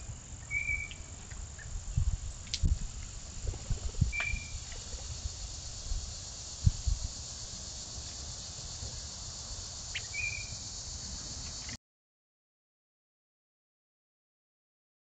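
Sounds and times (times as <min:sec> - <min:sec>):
wind rumble on microphone: 0:00.0 - 0:09.2
high insect hiss: 0:00.0 - 0:11.8
high bird chirps: 0:00.4 - 0:01.1, 0:04.0 - 0:04.9, 0:09.8 - 0:10.6.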